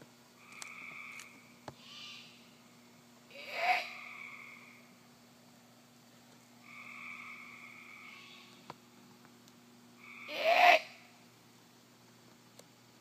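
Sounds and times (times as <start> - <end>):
bird screeching: 1.8 - 2.4, 10.0 - 10.9.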